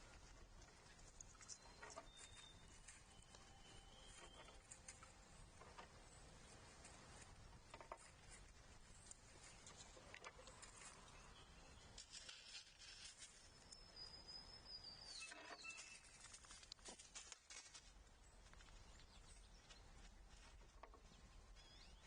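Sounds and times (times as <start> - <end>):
light taps and scratches: 4.1 - 11.2.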